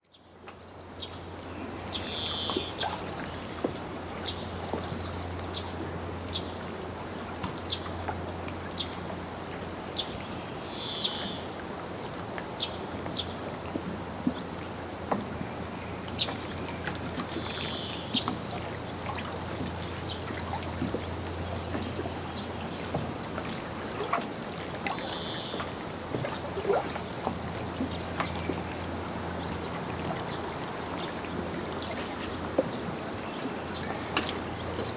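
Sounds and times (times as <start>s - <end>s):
water lapping against dock: 0.0s - 34.9s
bird call: 2.0s - 3.0s.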